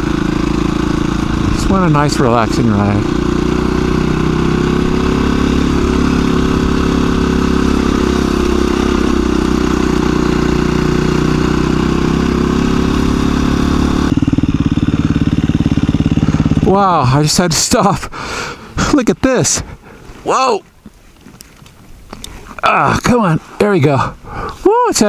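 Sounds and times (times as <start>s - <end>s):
dirt bike engine running: 0.0s - 19.0s.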